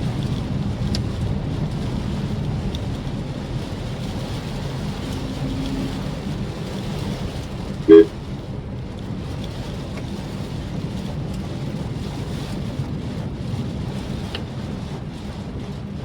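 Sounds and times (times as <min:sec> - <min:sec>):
car road and rain noise: 0:00.0 - 0:16.0
car horn beep: 0:07.9 - 0:08.1.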